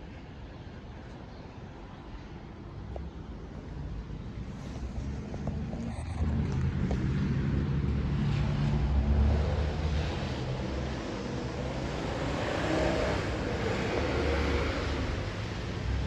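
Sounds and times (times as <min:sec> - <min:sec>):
low rumble of street traffic: 0:00.0 - 0:16.0.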